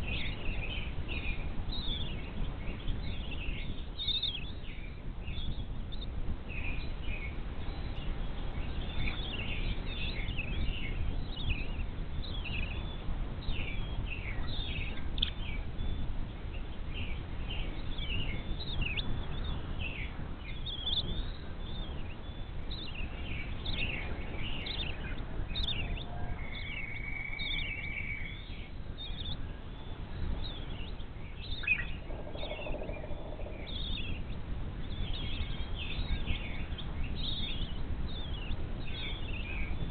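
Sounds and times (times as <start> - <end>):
birds chirping: 0.0 - 39.9
low background rumble: 0.0 - 39.9
bird holding a steady note: 24.2 - 35.7.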